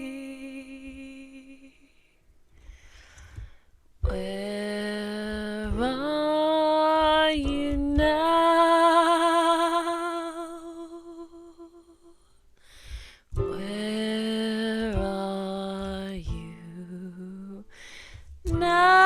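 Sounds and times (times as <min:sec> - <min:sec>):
person breathing: 0:02.5 - 0:03.8, 0:12.4 - 0:13.3, 0:17.7 - 0:18.4.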